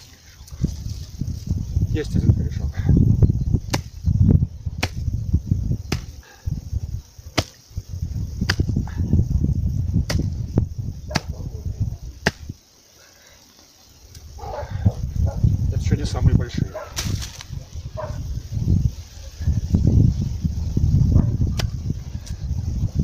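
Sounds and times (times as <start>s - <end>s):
chopping tool striking roots: 3.7s - 4.0s, 4.8s - 5.0s, 5.9s - 6.1s, 7.4s - 7.6s, 12.2s - 12.5s, 17.0s - 17.4s.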